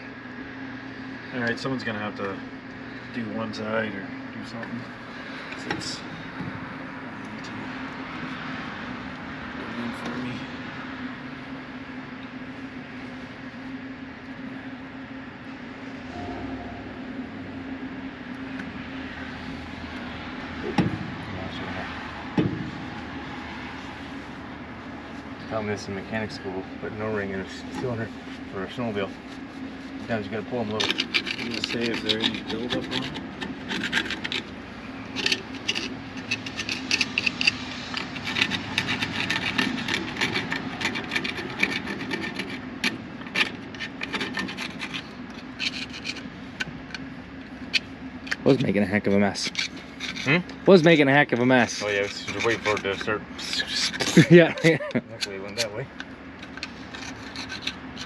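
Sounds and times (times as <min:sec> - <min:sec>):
steady mechanical hum: 0:00.0 - 0:58.0
sharp knocks: 0:20.7 - 0:21.2
tool scraping a part: 0:30.1 - 0:47.0, 0:47.6 - 0:50.5, 0:51.6 - 0:58.0.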